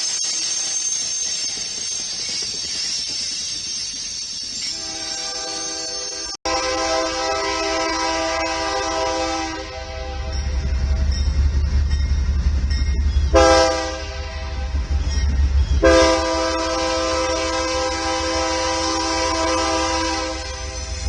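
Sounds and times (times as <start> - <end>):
locomotive air horn blasts: 4.7 - 10.6, 13.4 - 14.9, 15.8 - 20.8.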